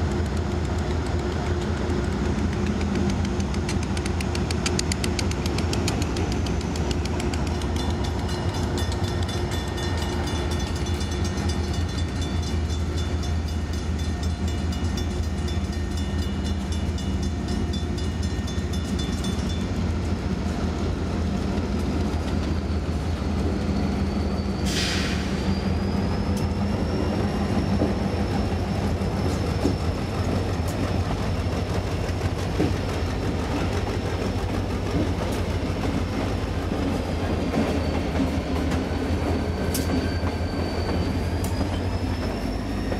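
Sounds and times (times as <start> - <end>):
freight train rumble and clatter: 0.0 - 42.9
high wheel squeal: 22.1 - 31.9, 32.6 - 42.9.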